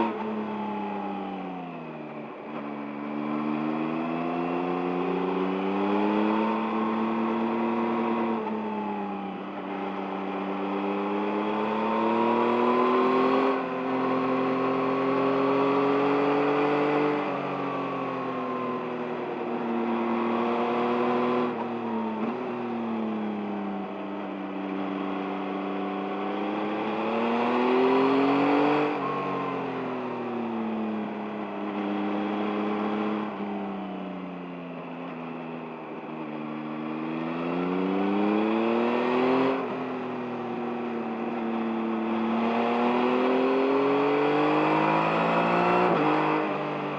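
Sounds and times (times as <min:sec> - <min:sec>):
motorcycle engine revving: 0:02.3 - 0:23.6, 0:24.2 - 0:33.7, 0:35.8 - 0:46.9.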